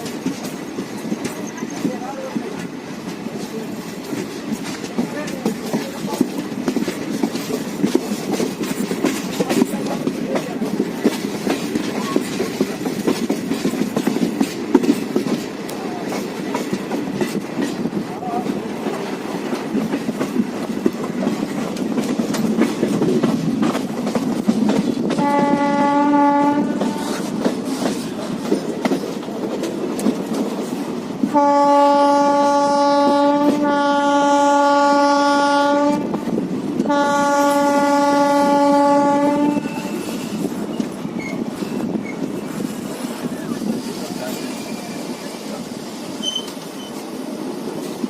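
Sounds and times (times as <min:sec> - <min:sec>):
train wheels clickety-clack: 0:00.0 - 0:48.0
locomotive horn blasts: 0:25.2 - 0:27.1, 0:31.3 - 0:36.1, 0:36.9 - 0:40.0.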